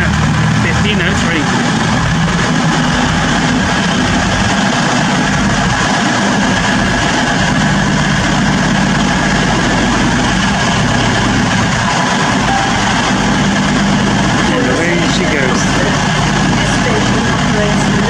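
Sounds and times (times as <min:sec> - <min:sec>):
train diesel engines idling: 0:00.0 - 0:18.0.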